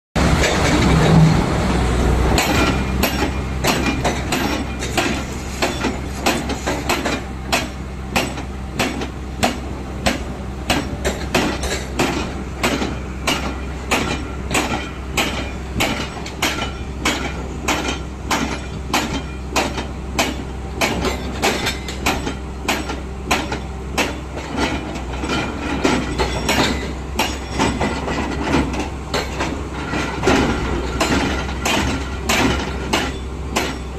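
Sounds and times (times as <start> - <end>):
excavator diesel engine drone: 0.2 - 33.9
metallic clanking of tracks: 0.2 - 33.9.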